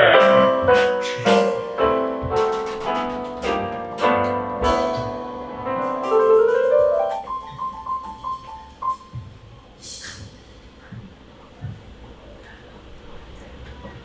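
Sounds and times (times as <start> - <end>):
piano music: 0.0 - 9.7.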